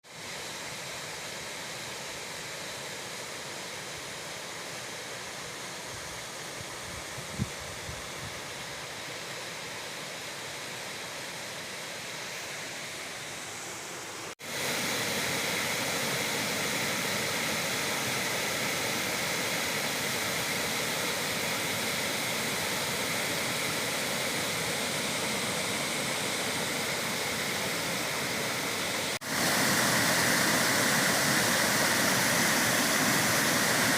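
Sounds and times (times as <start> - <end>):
waterfall rushing: 10.4 - 33.9.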